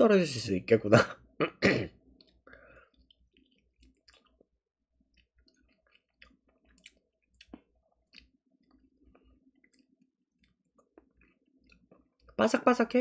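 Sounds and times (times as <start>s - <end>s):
person chewing crispy food: 2.1s - 12.4s.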